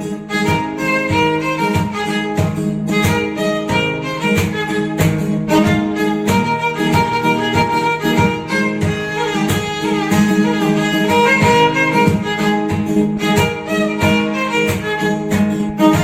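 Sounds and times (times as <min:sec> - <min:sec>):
string music over a beat: 0:00.0 - 0:16.0.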